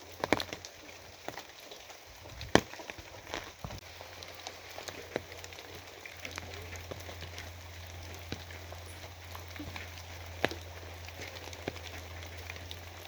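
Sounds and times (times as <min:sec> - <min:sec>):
rain drops tapping and splatting: 0:00.0 - 0:13.0.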